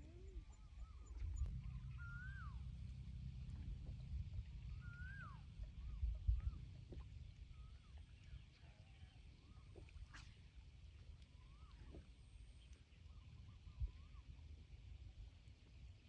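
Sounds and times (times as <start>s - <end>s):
whistled bird calls: 0.0s - 2.8s, 4.7s - 6.6s, 11.4s - 12.0s
low rumble: 0.0s - 7.7s.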